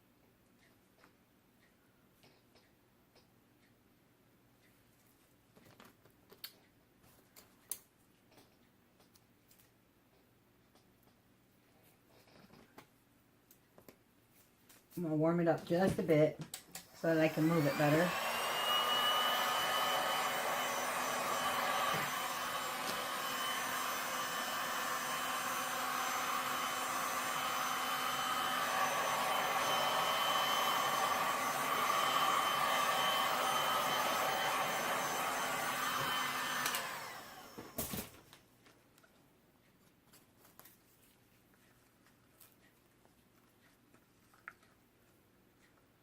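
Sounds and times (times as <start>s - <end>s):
heat gun blowing hot air: 16.9s - 37.9s.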